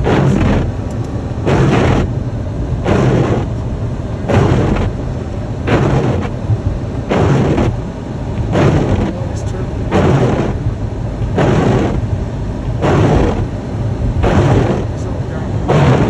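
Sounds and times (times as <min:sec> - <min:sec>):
windshield wipers swishing: 0:00.0 - 0:02.1, 0:02.8 - 0:03.6, 0:04.3 - 0:07.8, 0:08.5 - 0:10.7, 0:11.3 - 0:13.5, 0:14.2 - 0:16.0
car cabin rumble: 0:00.0 - 0:16.0.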